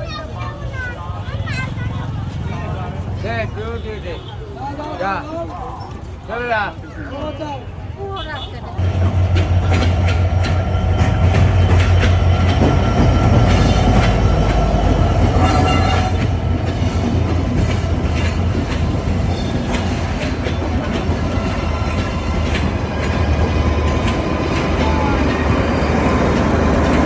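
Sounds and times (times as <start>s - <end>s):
train rumbling past: 8.8s - 27.0s
train wheels clacking: 8.8s - 27.0s.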